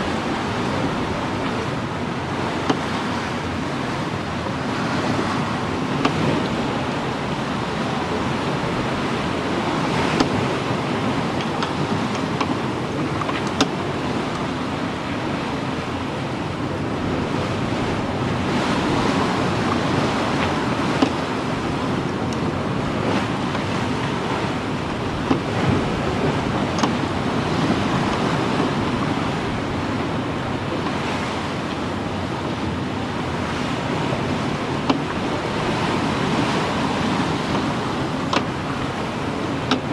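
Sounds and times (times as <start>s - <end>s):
sea water splashing along hull: 0.0s - 39.9s
wind: 0.0s - 39.9s
rigging clicks and knocks: 25.3s - 25.5s, 26.8s - 27.0s.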